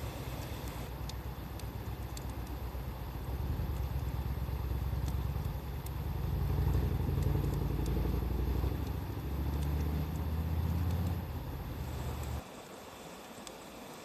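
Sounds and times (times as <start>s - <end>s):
wood fire crackling: 0.0s - 12.4s
passing vehicle engine rumble: 3.2s - 12.4s.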